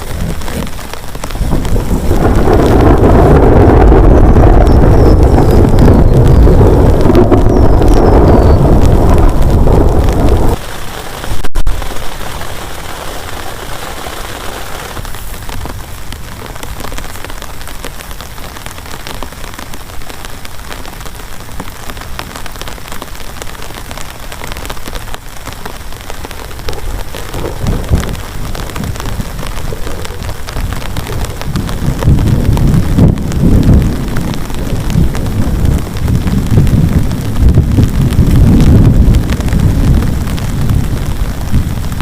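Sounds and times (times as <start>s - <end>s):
low rumble of thunder: 0.0s - 10.6s, 24.6s - 42.0s
heavy rain on a plastic tarp: 0.0s - 42.0s.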